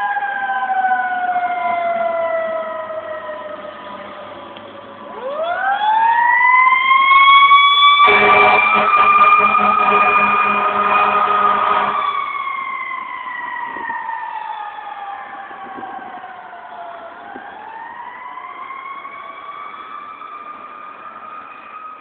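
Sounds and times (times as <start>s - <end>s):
fire engine siren winding: 5.1s - 20.4s
loud low blaring horn: 8.0s - 12.4s.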